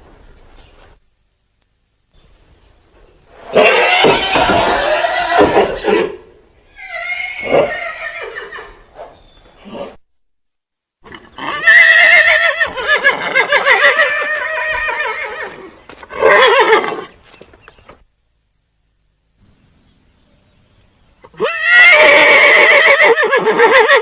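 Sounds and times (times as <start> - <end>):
horse whinnying: 3.4 - 8.8, 11.0 - 17.1, 21.3 - 24.0.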